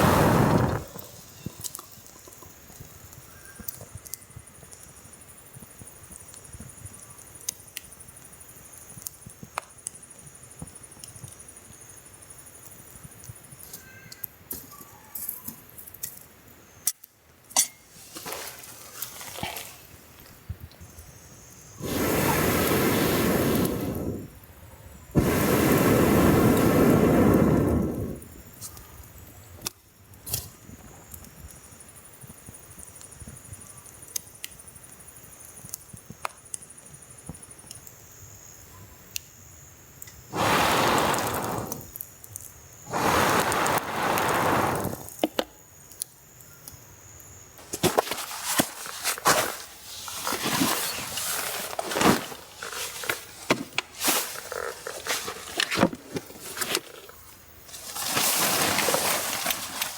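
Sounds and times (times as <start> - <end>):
air blown through pipe: 0.0 - 1.0, 21.8 - 24.3, 25.2 - 28.3, 40.3 - 41.9, 42.9 - 45.1
campfire crackling: 0.0 - 6.6, 17.5 - 33.2, 39.1 - 59.9
camp gear clinking and tapping: 16.9 - 20.3
rustling: 17.9 - 20.3, 47.6 - 59.9.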